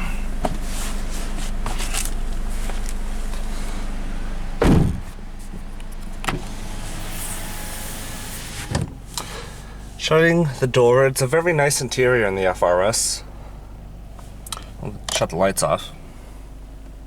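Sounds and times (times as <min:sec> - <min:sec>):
car door shutting: 0:00.0 - 0:09.6
car engine idling: 0:00.0 - 0:17.0.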